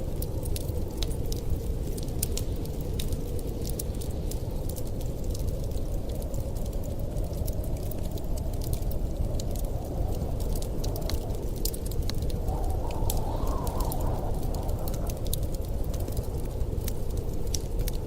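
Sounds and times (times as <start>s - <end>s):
wood fire crackling and popping: 0.0s - 18.0s
wind rushing: 8.2s - 17.4s.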